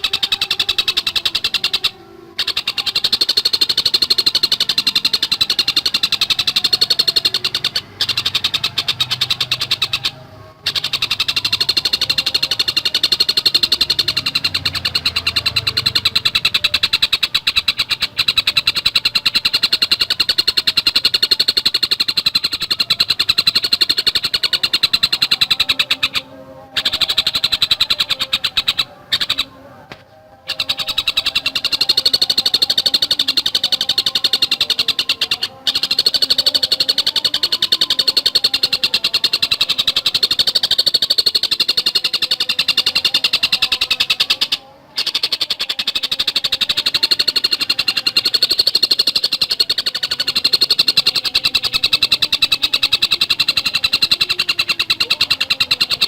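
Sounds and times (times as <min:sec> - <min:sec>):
kingfisher calling sharp notes: 0:00.0 - 0:56.0.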